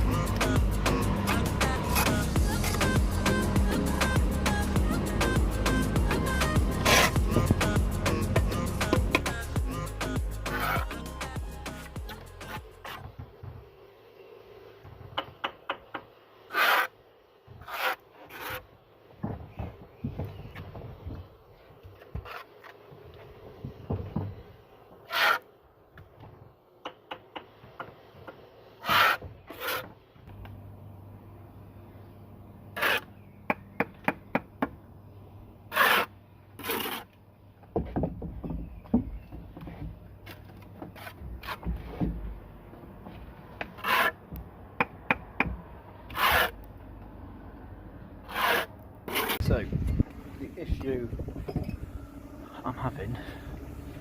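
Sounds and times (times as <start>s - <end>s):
trowel scraping mortar: 0.3s - 3.2s, 6.4s - 9.6s, 10.4s - 13.1s, 16.5s - 18.7s, 22.0s - 22.8s, 25.0s - 25.5s, 28.8s - 30.0s, 32.7s - 33.1s, 35.7s - 37.2s, 40.2s - 42.1s, 43.6s - 44.2s, 46.1s - 46.7s, 48.2s - 49.6s
steady low hum: 44.2s - 54.0s.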